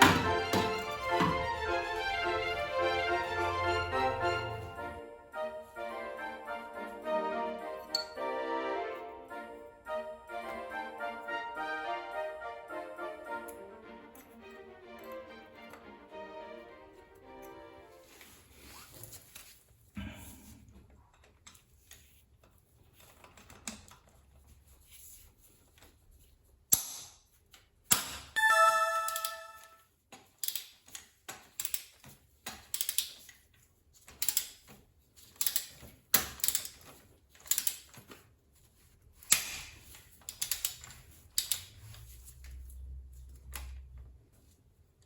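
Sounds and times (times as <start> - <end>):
short ringing tone: 28.4 - 29.8.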